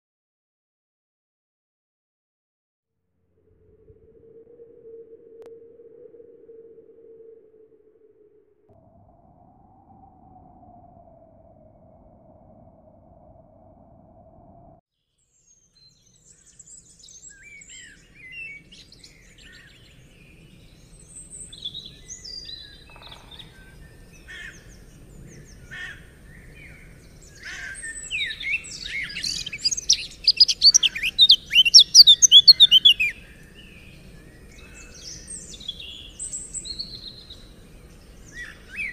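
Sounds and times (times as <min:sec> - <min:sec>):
faint steady tone: 0:03.2 - 0:14.8
songbirds chirping and whistling: 0:15.4 - 0:38.9.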